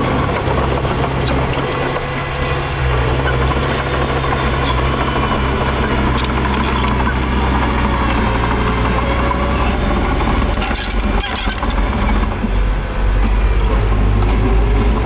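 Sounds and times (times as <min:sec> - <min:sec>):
diesel engine running: 0:00.0 - 0:15.0
engine clatter: 0:00.0 - 0:15.0.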